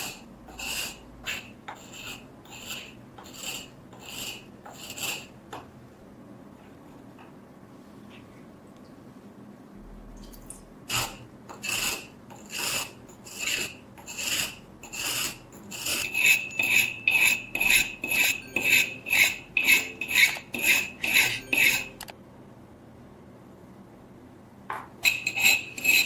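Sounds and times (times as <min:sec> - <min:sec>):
knife sharpening strokes: 0:00.0 - 0:05.3, 0:10.9 - 0:22.0, 0:25.0 - 0:26.0.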